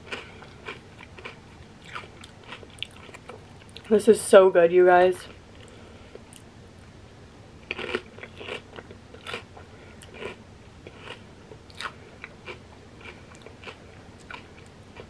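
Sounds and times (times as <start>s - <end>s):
crunchy chewing of chip: 0.0s - 3.9s, 7.6s - 15.0s.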